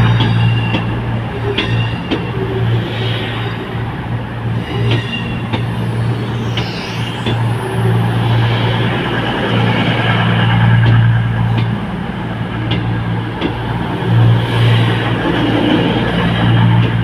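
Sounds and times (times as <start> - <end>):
wheels squeaking on rails: 0.0 - 11.7
train low drone: 0.0 - 17.0.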